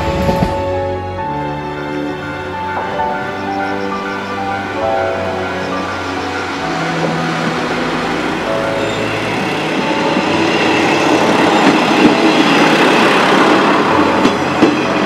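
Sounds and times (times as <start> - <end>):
train wheels clattering over joints: 9.8 - 15.0.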